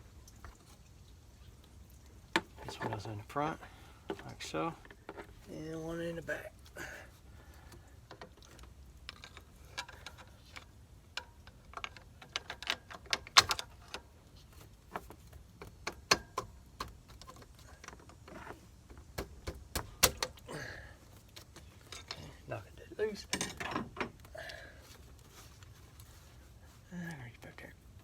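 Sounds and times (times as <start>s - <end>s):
metal engine parts clinking: 21.5s - 24.3s.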